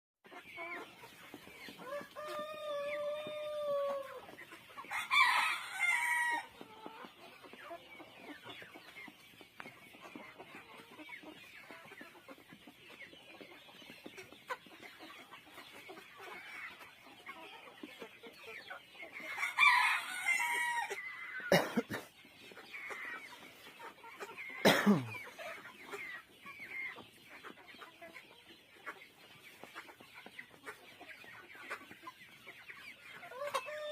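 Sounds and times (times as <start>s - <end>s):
chickens clucking: 0.2s - 33.9s
rooster crowing: 4.9s - 6.5s, 19.4s - 20.9s.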